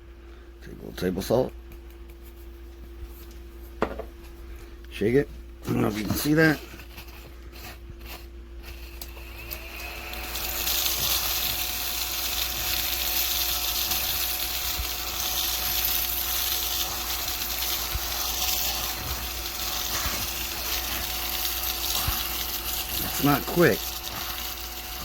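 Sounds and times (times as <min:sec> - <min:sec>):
small vacuum motor whine: 0:05.8 - 0:25.0
vacuum airy hiss: 0:08.7 - 0:25.0.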